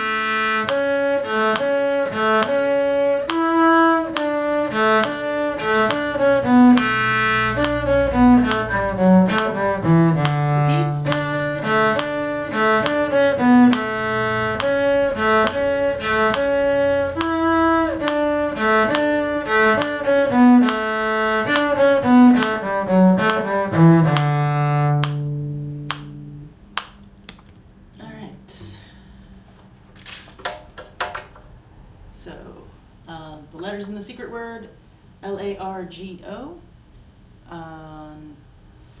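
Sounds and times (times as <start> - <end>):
bowed strings slow melody: 0.0 - 26.8.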